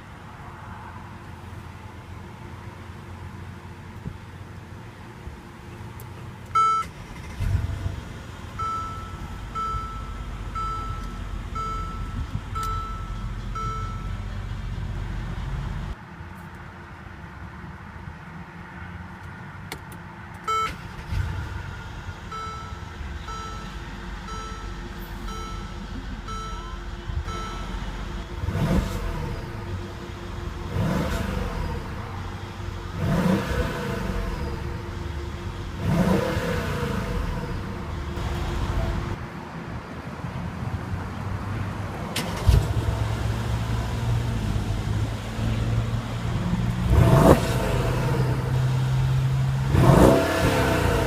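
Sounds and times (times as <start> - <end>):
car engine starting: 0.0 - 16.6, 19.0 - 39.9, 40.9 - 51.0
car warning chime beeping: 6.6 - 7.4, 8.5 - 14.5, 20.4 - 39.2
low rumble: 21.1 - 39.2.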